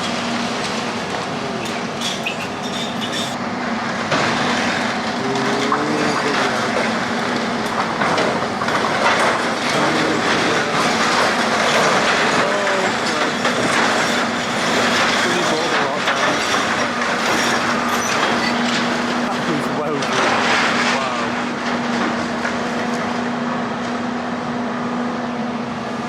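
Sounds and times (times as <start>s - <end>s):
rubble and metal grinding: 0.0s - 24.0s
short metal squeals: 1.6s - 3.4s, 11.5s - 18.9s.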